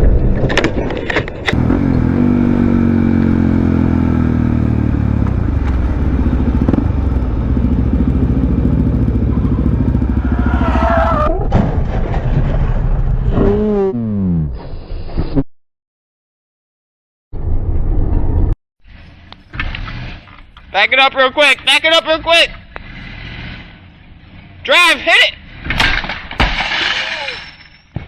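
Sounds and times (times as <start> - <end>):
vehicle engine slowing down: 1.6 - 11.3.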